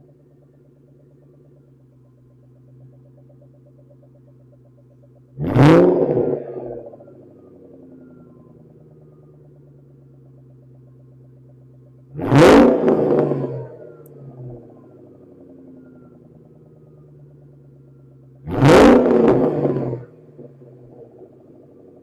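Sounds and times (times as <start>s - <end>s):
car engine idling and revving: 0.0s - 22.0s.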